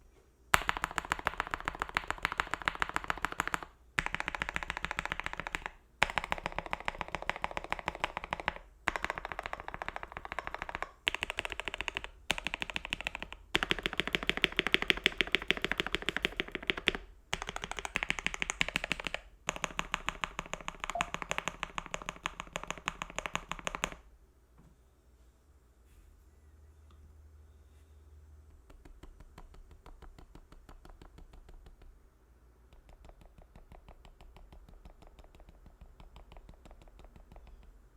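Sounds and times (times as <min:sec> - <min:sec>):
fast mechanical keyboard typing: 0:00.6 - 0:24.0, 0:32.8 - 0:37.7.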